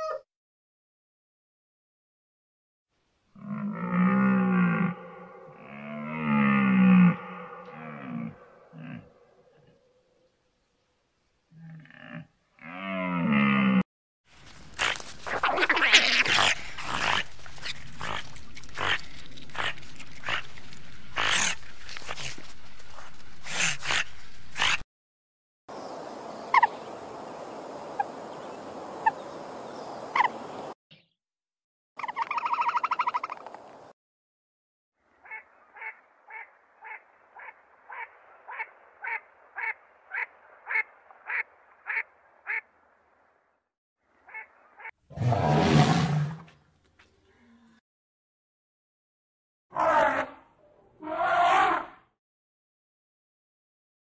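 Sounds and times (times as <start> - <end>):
otters chirping: 32.0 - 33.6
wood duck calling: 35.2 - 42.6.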